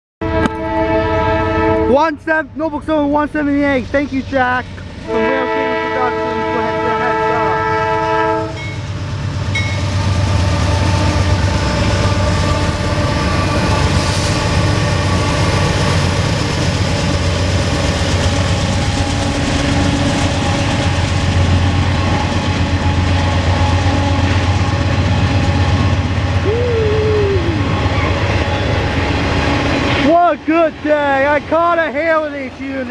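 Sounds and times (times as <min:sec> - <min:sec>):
train horn: 0:00.2 - 0:02.1, 0:05.0 - 0:08.8, 0:10.0 - 0:15.4
freight train rumbling past: 0:00.2 - 0:32.9
falling tone: 0:26.4 - 0:28.8.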